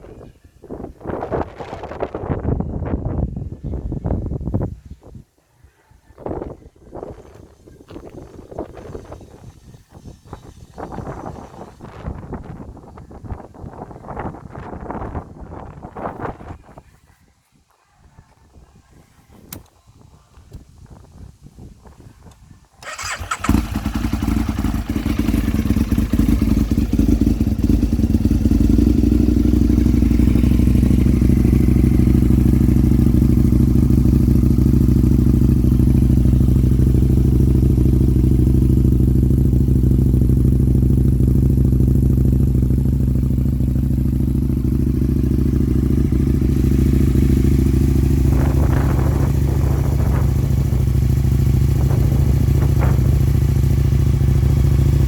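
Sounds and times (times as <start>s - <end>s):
motorcycle engine idling: 6.2s - 16.8s, 22.8s - 55.0s.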